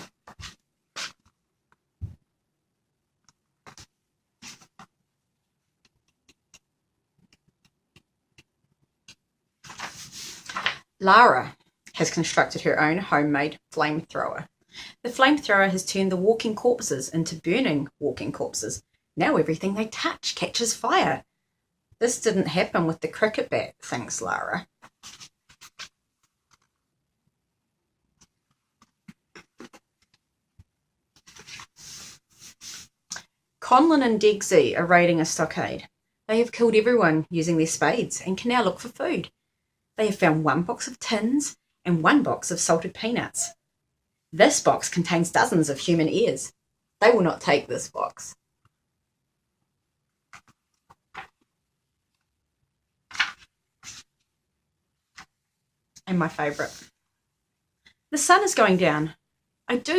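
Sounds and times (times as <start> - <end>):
book page turning: 3.6 - 4.8, 9.6 - 10.8, 24.8 - 26.8, 31.1 - 33.3, 50.3 - 51.5, 53.1 - 54.2, 56.4 - 56.9.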